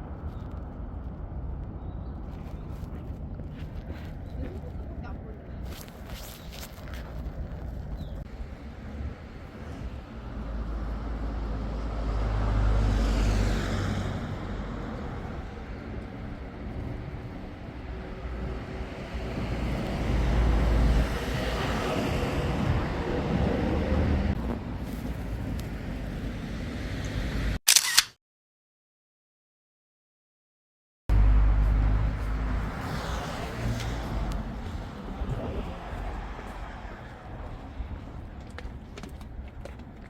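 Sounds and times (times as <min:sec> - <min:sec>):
street ambience: 0:00.0 - 0:28.0, 0:31.1 - 0:40.0
vehicle passing: 0:08.4 - 0:24.8, 0:31.1 - 0:38.8.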